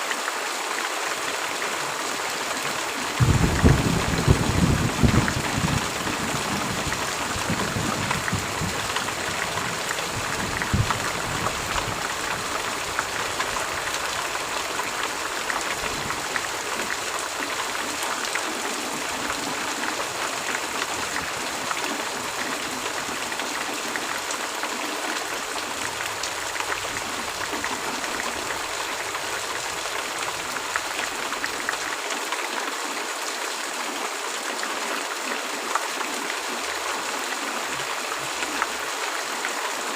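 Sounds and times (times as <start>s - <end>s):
heavy rain: 0.0s - 39.9s
low rumble of thunder: 3.2s - 12.6s.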